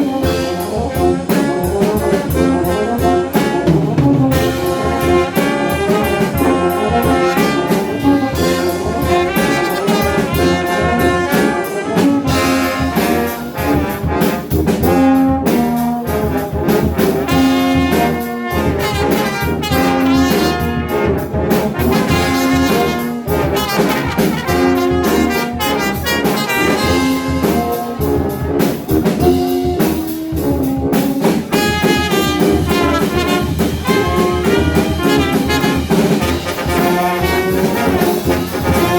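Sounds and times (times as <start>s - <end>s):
trumpets and trombones: 0.0s - 38.9s
rapid percussive hits: 4.2s - 30.0s, 31.0s - 38.9s.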